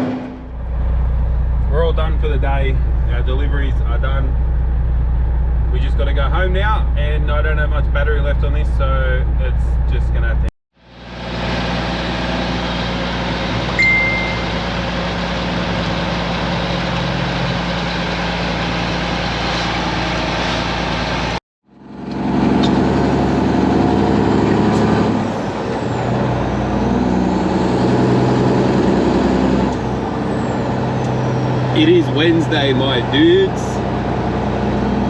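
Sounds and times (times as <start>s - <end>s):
diesel truck engine running: 0.0s - 35.0s
short high beep: 13.8s - 14.7s.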